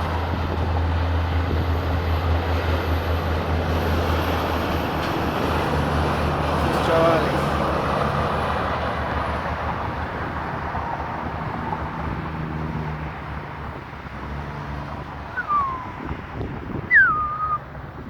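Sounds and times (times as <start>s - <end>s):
heavy truck engine passing: 0.0s - 18.0s
short falling whistles: 15.3s - 16.0s, 16.9s - 17.6s.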